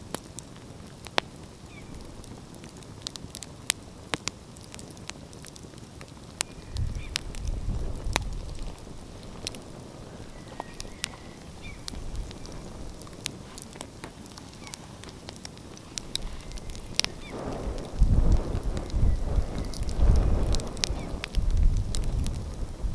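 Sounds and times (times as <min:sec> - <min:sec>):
wood fire crackling and popping: 0:00.0 - 0:22.9
ocean surf rumble: 0:16.0 - 0:22.9.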